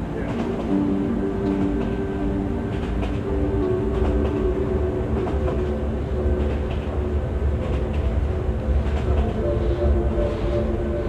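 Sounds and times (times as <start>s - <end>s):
faint rail clicks: 0.0s - 2.1s, 2.7s - 4.6s, 5.2s - 7.0s, 7.6s - 10.5s
train wheel rumble: 0.0s - 11.0s.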